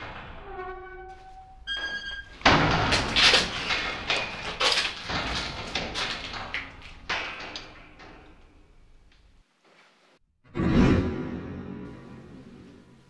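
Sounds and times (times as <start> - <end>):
fabric rustling: 9.3 - 10.2.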